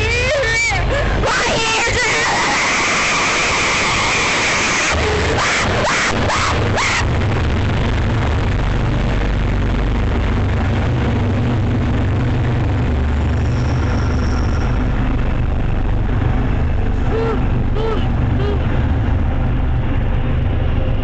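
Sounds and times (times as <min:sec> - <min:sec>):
diesel locomotive engine rumble: 0:00.0 - 0:21.0.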